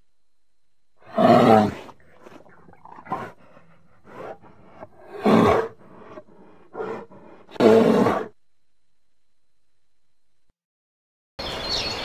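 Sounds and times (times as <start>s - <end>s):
bear growling: 1.0s - 8.4s.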